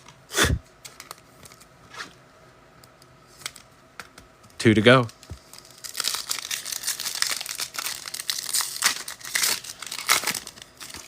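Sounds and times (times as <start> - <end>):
foil wrapper crinkling and tearing: 5.1 - 11.0.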